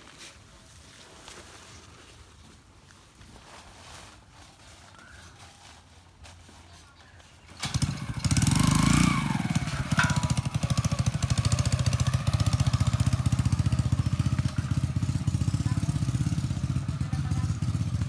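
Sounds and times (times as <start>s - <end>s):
small motorcycle engine idling: 7.4s - 18.0s.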